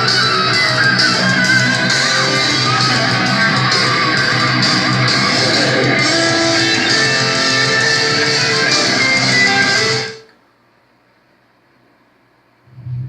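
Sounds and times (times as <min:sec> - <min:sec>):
rock music over speakers: 0:00.0 - 0:10.3.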